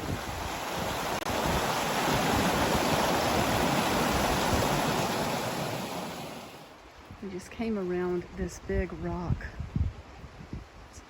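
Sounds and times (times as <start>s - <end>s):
river water running over rocks: 0.0s - 8.2s.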